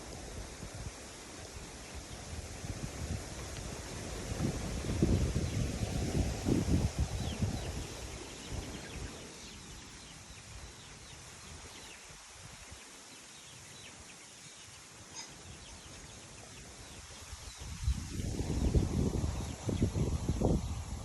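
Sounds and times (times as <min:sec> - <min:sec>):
wind rumbling on microphone: 0:00.0 - 0:12.8, 0:16.6 - 0:21.0
small birds chirping: 0:04.8 - 0:21.0.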